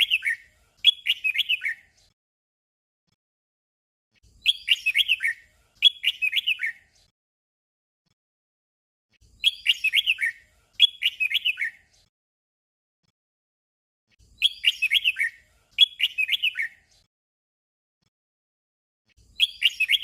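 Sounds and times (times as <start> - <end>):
bird warbling song: 0.0 - 2.0, 4.3 - 7.0, 9.2 - 11.9, 14.2 - 17.0, 19.2 - 20.0.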